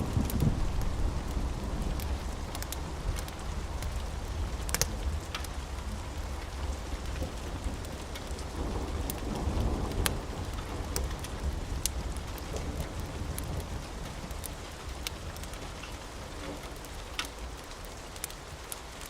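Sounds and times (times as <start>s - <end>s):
thunder rumble: 0.0s - 5.3s
steady rain: 0.0s - 19.0s.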